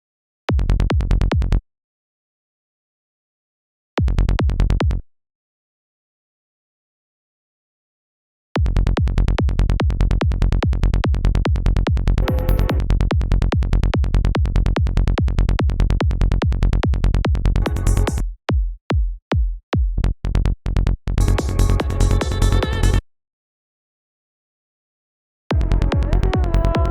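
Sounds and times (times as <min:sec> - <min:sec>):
electronic kick drum: 0:08.6 - 0:20.0, 0:21.2 - 0:23.0, 0:25.5 - 0:26.9
rolling bass: 0:10.3 - 0:18.2, 0:20.3 - 0:23.0, 0:25.6 - 0:26.9
noise sweeps: 0:12.2 - 0:12.8.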